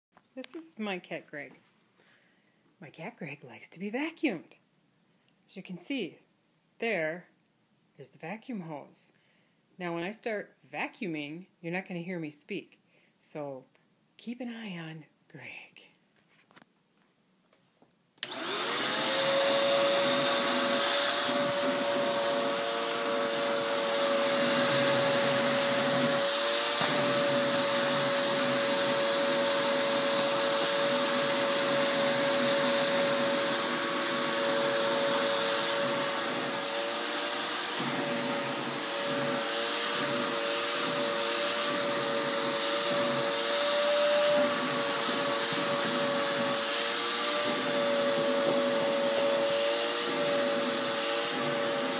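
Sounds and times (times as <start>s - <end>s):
vacuum cleaner motor whine: 18.2s - 51.9s.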